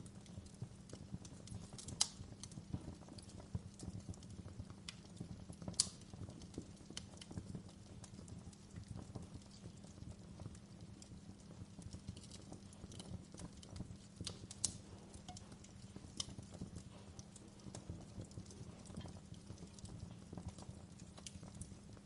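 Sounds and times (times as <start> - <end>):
wood fire burning in a fireplace: 0.0 - 22.0.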